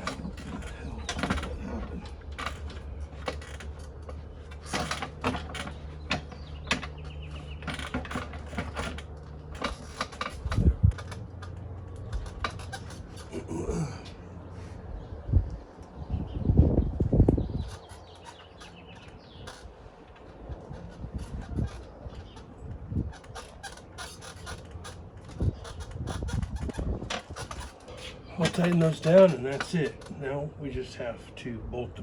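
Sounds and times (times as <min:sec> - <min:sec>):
metallic clicks and knocks: 0:00.0 - 0:13.3
steady low hum: 0:00.0 - 0:32.0.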